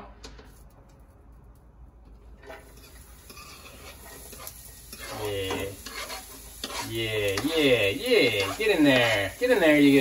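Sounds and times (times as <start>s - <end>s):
knife scraping cutting board: 2.4s - 7.0s
onion sizzling in oil: 2.4s - 10.0s.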